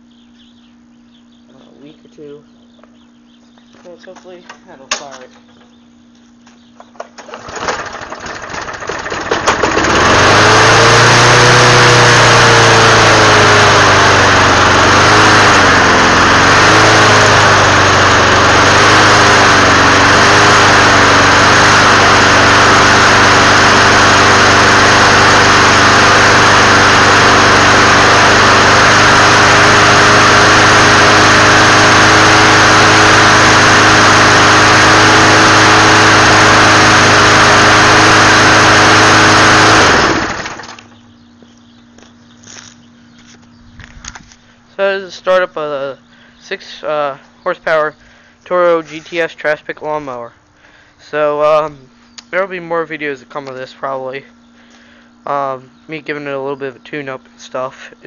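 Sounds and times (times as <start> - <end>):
lawn mower engine starting: 6.8 - 41.1.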